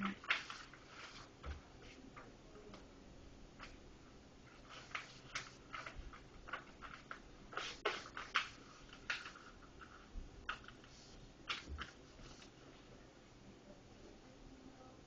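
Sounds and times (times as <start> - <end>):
paper crinkling: 0.0 - 1.3, 4.5 - 12.5.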